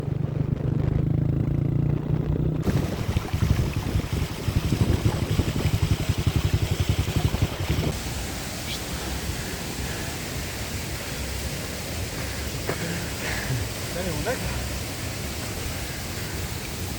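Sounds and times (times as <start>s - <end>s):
engine humming and pulsing: 0.0s - 8.0s
steady rushing noise: 0.0s - 16.9s.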